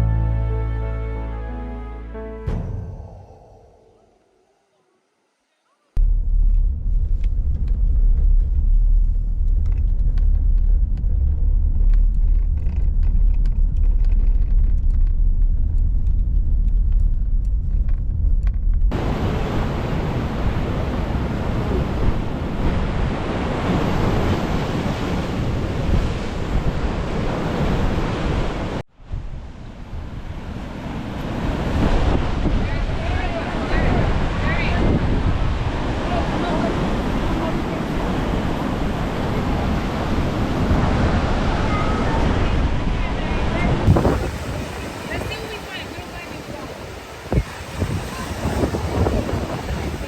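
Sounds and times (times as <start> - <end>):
wind buffeting microphone: 6.0 - 50.0
ocean surf washing: 18.9 - 50.0.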